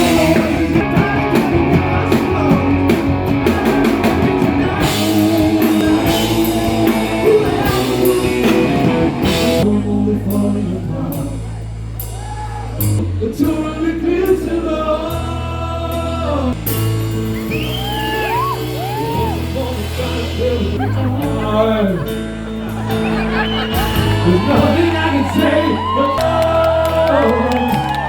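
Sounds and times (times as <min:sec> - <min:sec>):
live rock band playing: 0:00.0 - 0:10.6, 0:15.1 - 0:28.0
person singing: 0:00.0 - 0:11.6, 0:18.0 - 0:22.4, 0:23.7 - 0:28.0.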